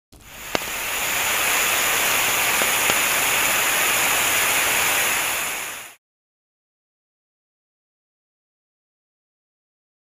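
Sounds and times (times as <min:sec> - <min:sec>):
steady hissing noise: 0:00.2 - 0:06.0.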